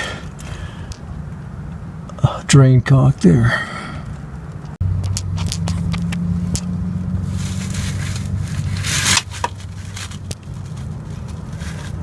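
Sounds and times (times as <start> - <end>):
scraping rasp: 7.2 - 12.0.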